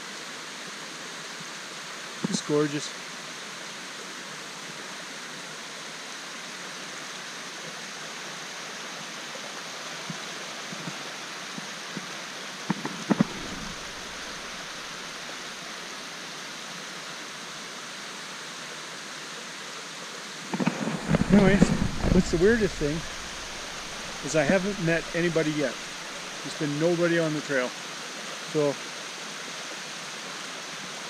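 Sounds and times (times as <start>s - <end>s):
creek water rushing over falls: 0.0s - 31.0s.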